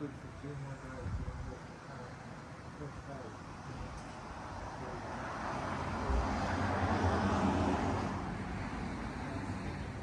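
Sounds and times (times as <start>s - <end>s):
motor vehicle passing by: 4.4s - 10.0s.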